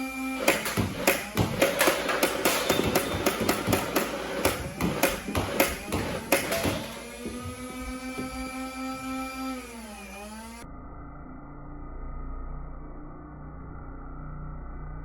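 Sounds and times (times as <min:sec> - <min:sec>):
small motor whining: 0:00.0 - 0:13.0
rapid clicking: 0:00.4 - 0:07.0.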